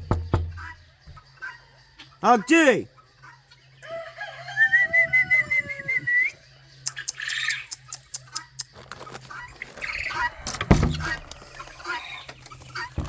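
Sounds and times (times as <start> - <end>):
chickens clucking: 0.0 - 13.0
rooster crowing: 3.8 - 6.3.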